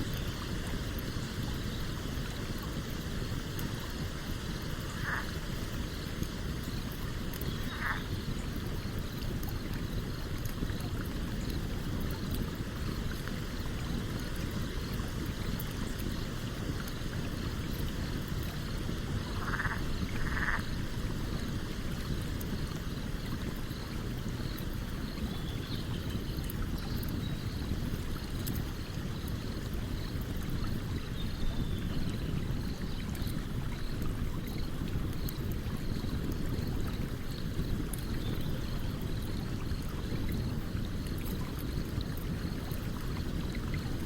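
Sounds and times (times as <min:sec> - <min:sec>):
stream water rushing: 0:00.0 - 0:25.2
campfire crackling: 0:00.0 - 0:31.1, 0:31.9 - 0:44.0.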